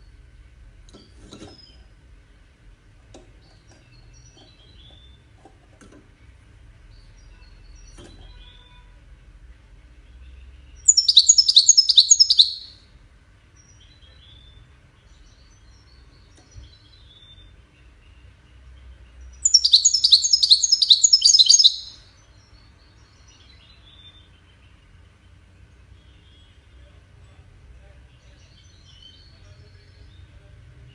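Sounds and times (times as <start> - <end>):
goldfinch song: 3.1 - 5.3, 10.0 - 12.9, 13.5 - 27.0, 28.1 - 30.9.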